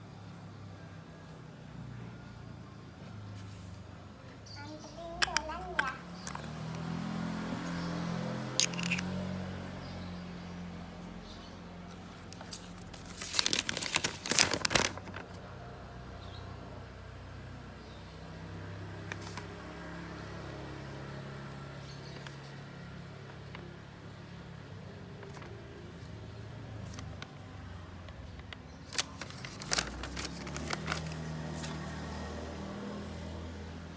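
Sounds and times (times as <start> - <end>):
packaging crinkling and clicking: 5.2 - 6.8, 8.6 - 9.0, 12.3 - 15.4, 28.1 - 31.8.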